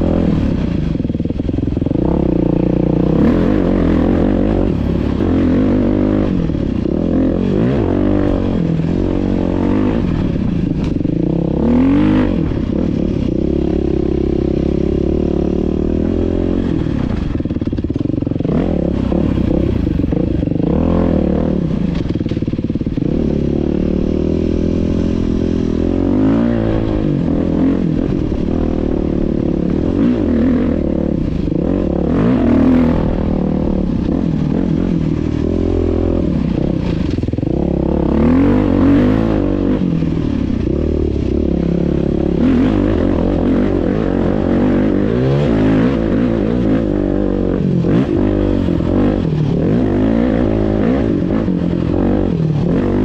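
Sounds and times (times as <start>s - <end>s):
dirt bike engine revving: 0.0s - 53.0s
engine clatter: 16.3s - 25.7s, 26.4s - 53.0s.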